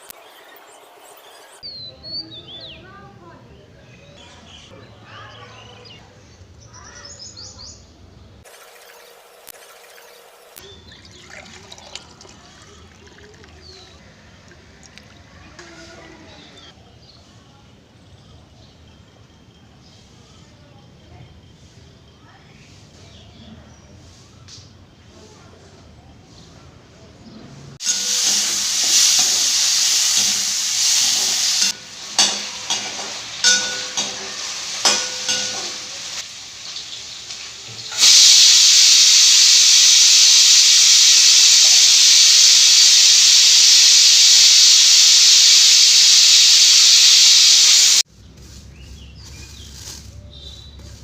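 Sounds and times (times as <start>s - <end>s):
food sizzling in a pan: 27.8s - 48.1s
metal utensil clinking on pan: 31.8s - 36.1s.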